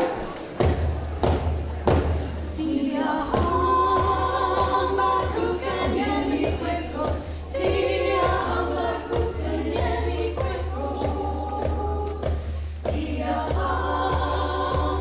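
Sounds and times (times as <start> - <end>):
low drum strikes: 0.6 - 2.6
choir singing in parts: 2.5 - 15.0.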